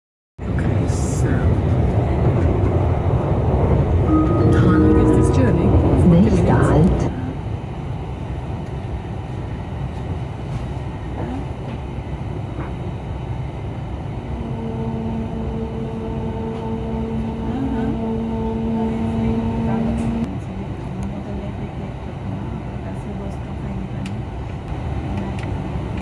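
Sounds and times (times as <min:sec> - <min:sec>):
train rumbling: 0:00.4 - 0:26.0
humming whine: 0:04.1 - 0:07.4, 0:14.2 - 0:20.3.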